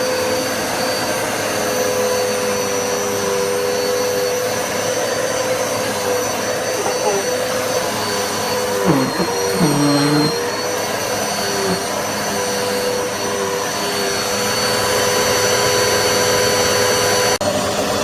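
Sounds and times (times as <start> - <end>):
vacuum cleaner motor whine: 0.0 - 18.0.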